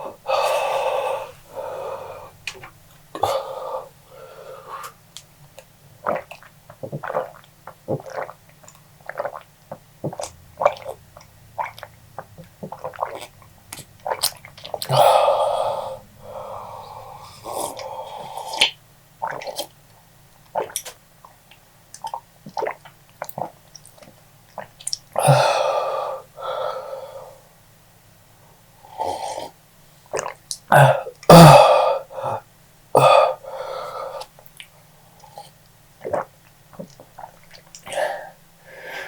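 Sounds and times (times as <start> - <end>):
man blowing out breath: 0.0 - 2.4, 14.9 - 18.4, 25.2 - 27.3, 37.9 - 39.0
wet mouth clicks and smacks: 20.6 - 25.2, 34.4 - 35.3.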